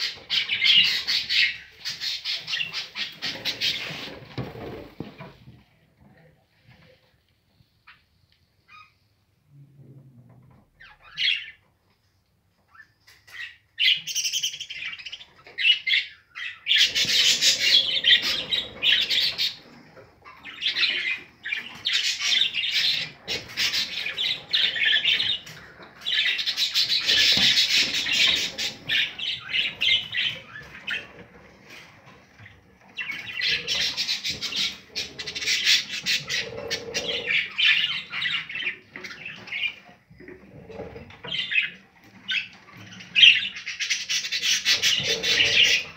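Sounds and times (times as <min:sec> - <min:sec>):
budgerigars squawking and chattering: 0:00.0 - 0:04.2, 0:13.3 - 0:31.8, 0:32.4 - 0:39.8, 0:40.7 - 0:45.9.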